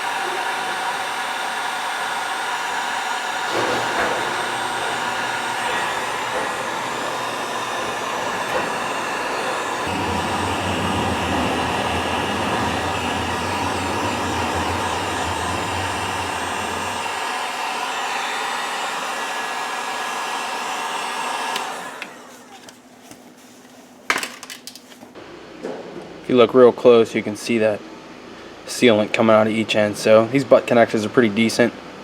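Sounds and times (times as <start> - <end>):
heat gun blowing: 0.0 - 22.7.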